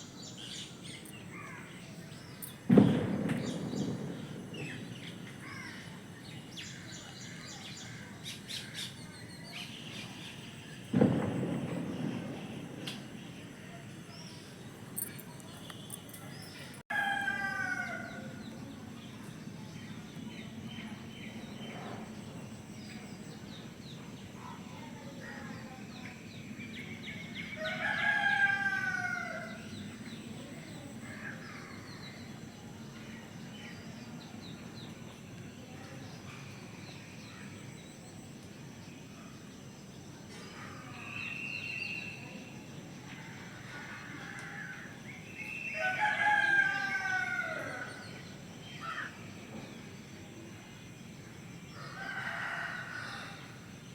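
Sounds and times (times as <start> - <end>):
rooster crowing: 16.9 - 18.3, 27.6 - 29.6, 45.8 - 48.0, 51.8 - 53.6.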